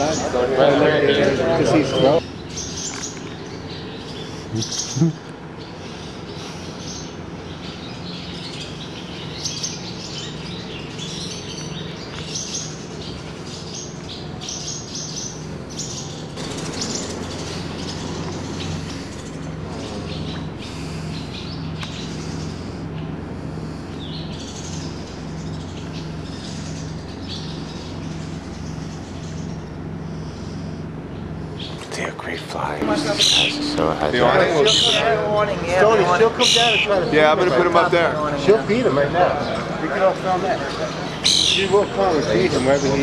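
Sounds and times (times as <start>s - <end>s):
birds chirping: 0.0s - 43.0s
low hum: 15.4s - 36.0s.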